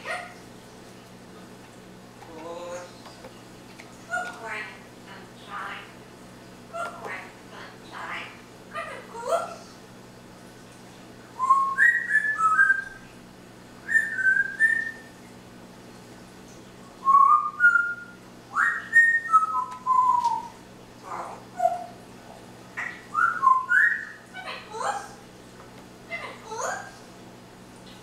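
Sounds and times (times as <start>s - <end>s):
parrot whistling: 11.4s - 13.0s, 13.8s - 15.1s, 17.0s - 20.5s, 22.8s - 24.2s.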